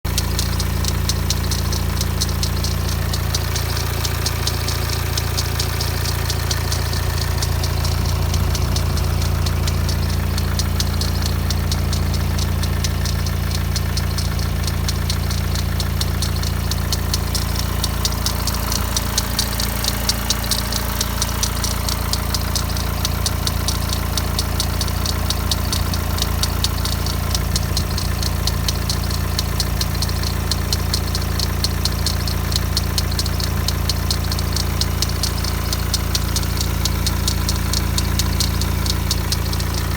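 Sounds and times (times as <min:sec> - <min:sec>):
diesel engine idling: 0:00.0 - 0:39.9
fast metallic rattle: 0:00.1 - 0:39.9.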